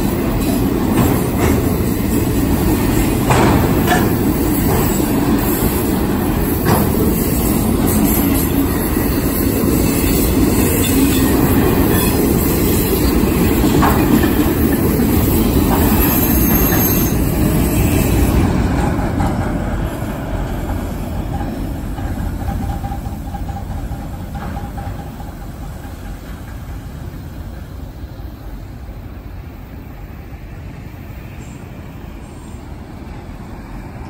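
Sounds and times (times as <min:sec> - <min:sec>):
freight train rumbling past: 0:00.0 - 0:34.0
wheel squeal: 0:15.7 - 0:18.4.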